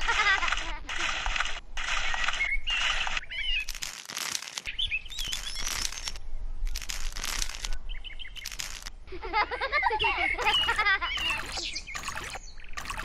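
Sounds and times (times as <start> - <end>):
scraping crunching strokes: 0.0 - 8.9, 10.4 - 13.0
birds chirping: 2.2 - 3.8, 4.7 - 6.2, 7.5 - 13.0.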